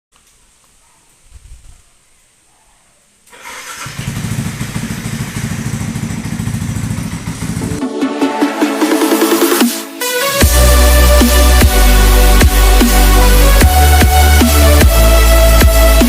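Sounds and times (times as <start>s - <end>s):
motorcycle engine starting and running: 3.3s - 7.9s
electronic music: 7.5s - 16.0s.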